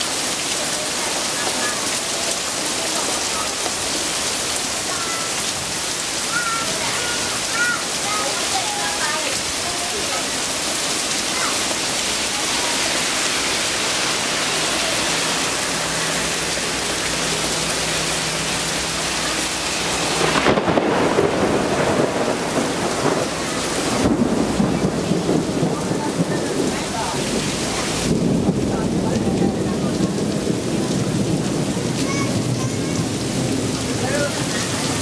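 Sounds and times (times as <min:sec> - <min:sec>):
heavy rain falling: 0:00.0 - 0:35.0
low rumbling: 0:10.3 - 0:35.0.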